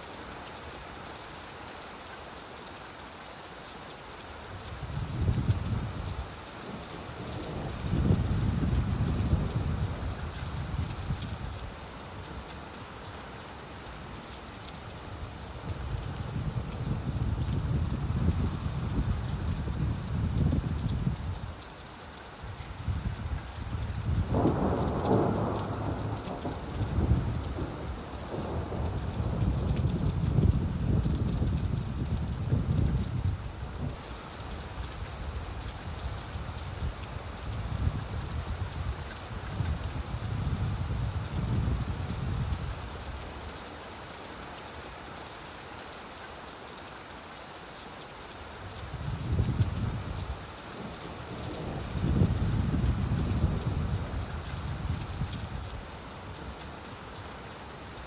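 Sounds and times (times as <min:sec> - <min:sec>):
steady rainfall: 0:00.0 - 0:58.0
rolling thunder: 0:24.2 - 0:33.0, 0:51.4 - 0:54.3.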